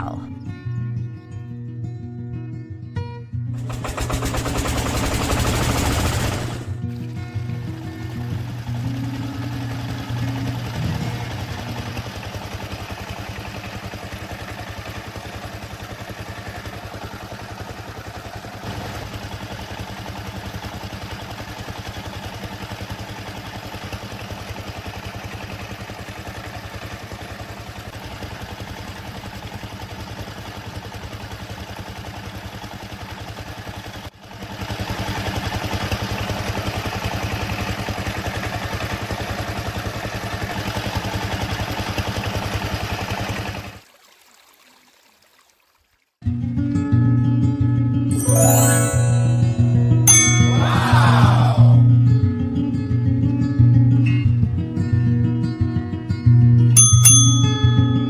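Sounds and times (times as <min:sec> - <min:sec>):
small model engine running: 0:03.6 - 0:06.8, 0:08.0 - 0:43.8.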